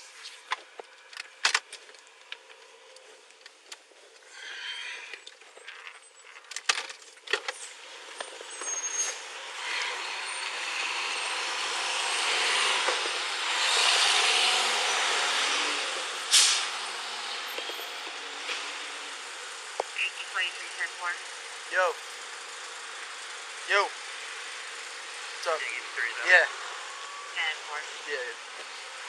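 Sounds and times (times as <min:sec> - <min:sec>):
rush of traffic: 0:07.4 - 0:29.0
short sharp hiss: 0:16.3 - 0:16.8.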